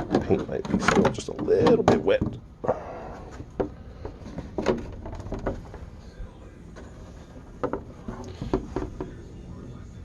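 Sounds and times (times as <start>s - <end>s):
plastic car body clicking and knocking: 0.0s - 2.4s, 3.4s - 5.8s, 7.6s - 9.2s
low steady background hum: 0.0s - 10.0s.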